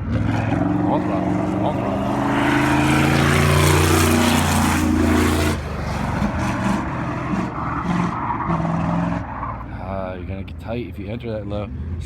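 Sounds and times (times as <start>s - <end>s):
race car engine revving: 0.0s - 9.6s.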